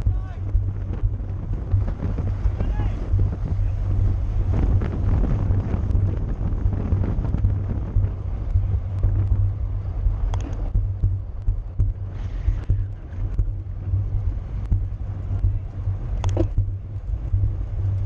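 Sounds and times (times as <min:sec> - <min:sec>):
wind buffeting microphone: 0:00.0 - 0:18.0
faint ticks: 0:05.5 - 0:18.0.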